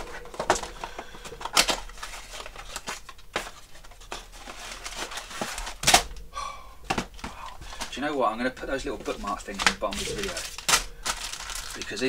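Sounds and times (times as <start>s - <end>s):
plastic parts clicking: 0.0s - 6.2s
plastic parts rustling: 0.0s - 6.2s, 6.8s - 12.0s.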